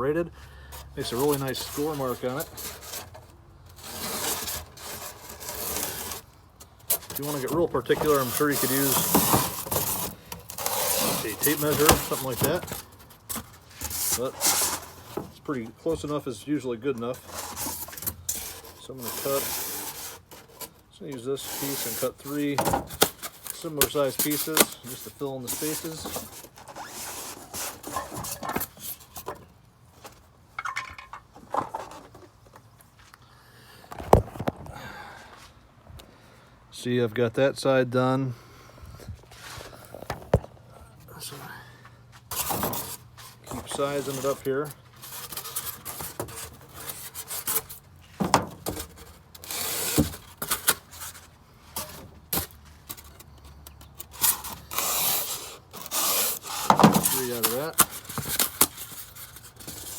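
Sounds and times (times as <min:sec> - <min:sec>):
knife sawing through styrofoam: 0:01.0 - 0:03.2, 0:03.8 - 0:06.3, 0:06.9 - 0:12.9, 0:13.8 - 0:15.2, 0:17.2 - 0:28.2, 0:42.3 - 0:47.8, 0:48.7 - 0:51.2, 0:54.1 - 0:59.9.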